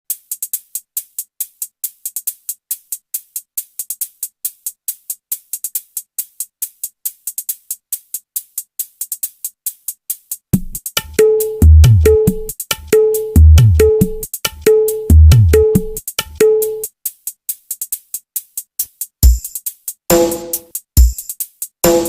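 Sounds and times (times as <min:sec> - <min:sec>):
drum machine hi-hat ticking: 0:00.1 - 0:22.0
deep bass and full beat: 0:10.6 - 0:12.6, 0:13.4 - 0:14.3, 0:15.1 - 0:16.0.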